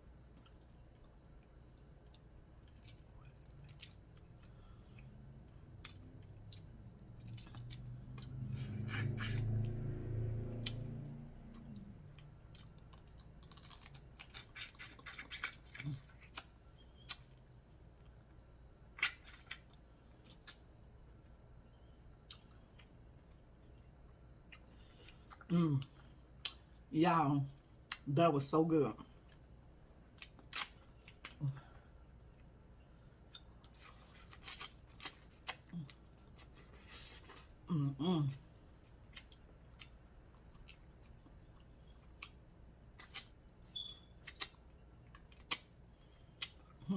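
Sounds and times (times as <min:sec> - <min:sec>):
low hum: 0:00.0 - 0:14.2
person humming: 0:37.7 - 0:38.4.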